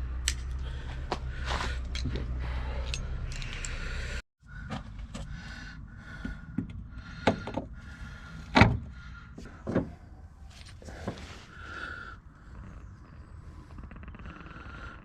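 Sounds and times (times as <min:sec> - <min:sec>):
hand tools and metal parts clicking: 0:00.2 - 0:00.7, 0:01.4 - 0:04.2.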